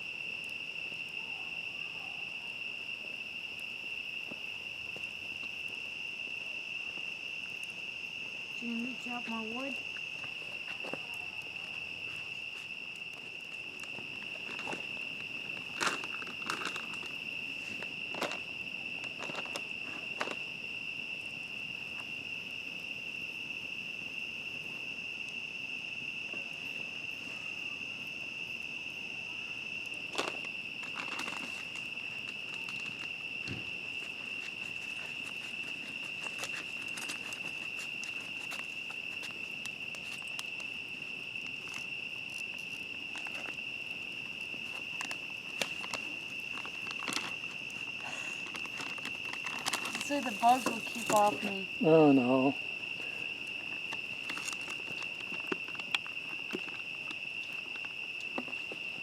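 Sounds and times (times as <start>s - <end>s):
crickets chirring: 0.0s - 59.0s
campfire crackling and popping: 3.4s - 20.5s, 31.6s - 51.6s.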